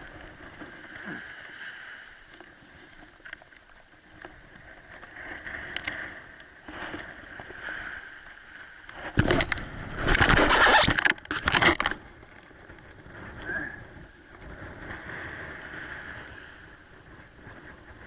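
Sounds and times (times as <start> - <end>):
water splashing and sloshing: 0.0 - 13.3
small ticks: 2.3 - 6.5.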